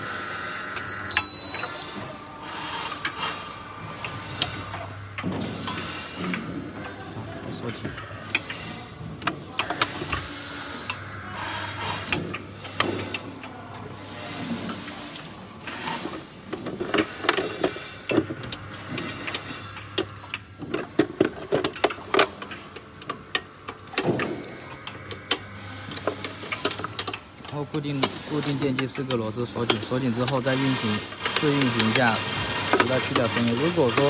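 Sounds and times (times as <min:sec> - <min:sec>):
small electric motor humming: 0:29.6 - 0:34.0.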